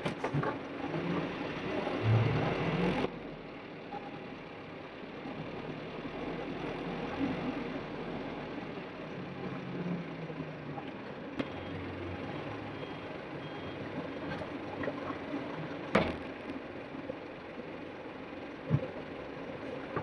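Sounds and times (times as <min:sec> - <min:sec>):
truck engines running: 0:00.0 - 0:20.0
faint beeping: 0:11.4 - 0:13.9.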